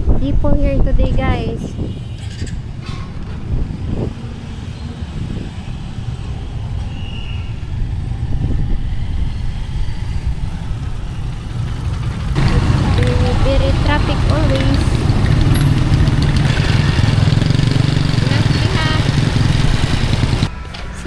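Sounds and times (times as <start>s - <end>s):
engine and road noise rumble: 0.0s - 21.0s.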